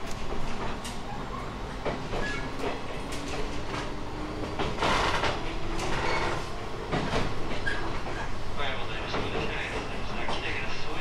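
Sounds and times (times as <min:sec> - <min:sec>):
electric train interior hum: 0:00.0 - 0:11.0
knocks and clunks: 0:01.8 - 0:08.3.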